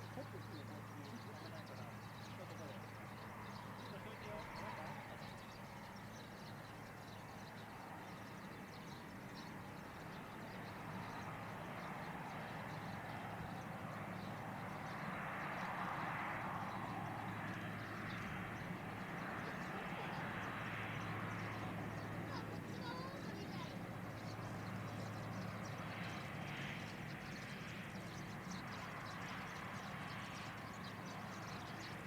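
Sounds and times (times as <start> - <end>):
distant jet airliner engine: 0.0 - 32.0.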